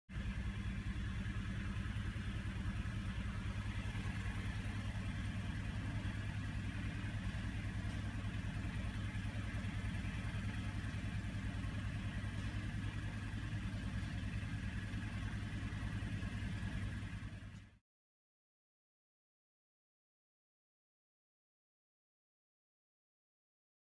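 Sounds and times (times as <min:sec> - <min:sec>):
car engine idling: 0:00.1 - 0:17.8.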